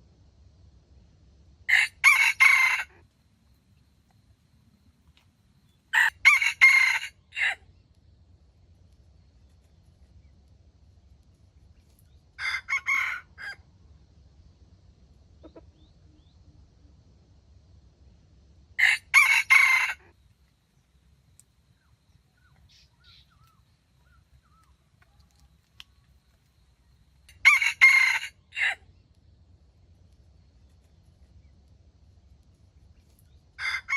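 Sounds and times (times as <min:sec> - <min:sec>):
rooster crowing: 0:01.7 - 0:03.0, 0:05.9 - 0:07.6, 0:12.4 - 0:13.6, 0:18.8 - 0:20.2, 0:27.3 - 0:28.8, 0:33.6 - 0:33.9.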